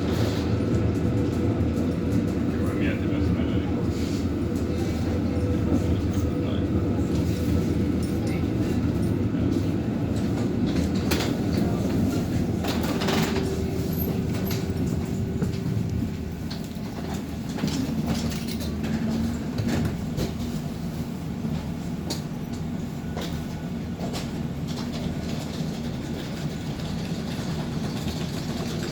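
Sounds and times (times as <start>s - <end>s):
tram rumbling on rails: 0.0s - 28.9s
wheels clicking over track: 24.0s - 28.9s.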